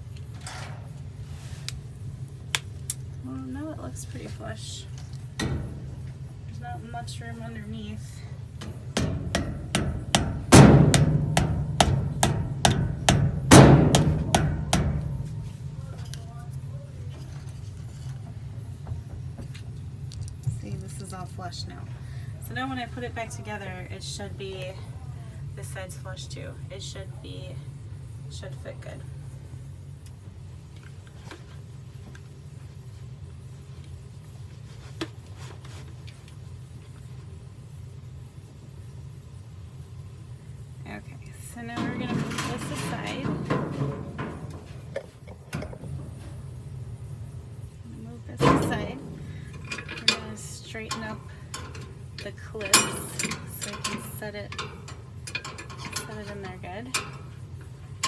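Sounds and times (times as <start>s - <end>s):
steady low hum: 0.0s - 58.0s
hammer blows on metal part: 8.7s - 16.1s.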